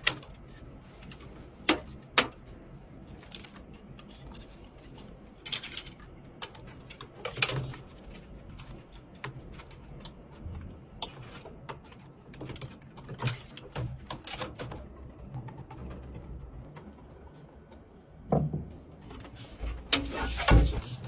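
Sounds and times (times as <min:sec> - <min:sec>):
clicks and taps of computer parts: 0:00.0 - 0:04.5
faint low hum: 0:00.0 - 0:21.0.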